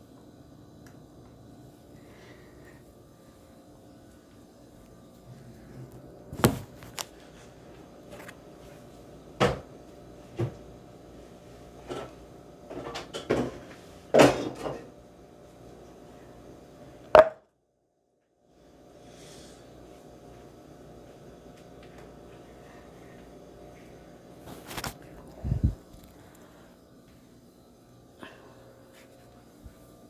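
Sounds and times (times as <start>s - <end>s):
faint steady hum: 0.0s - 17.4s, 18.4s - 30.0s.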